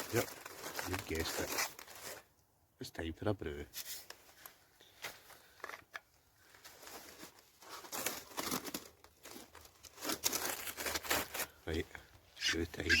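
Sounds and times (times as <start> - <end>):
packaging crinkling and rustling: 0.0 - 2.3, 3.8 - 11.8.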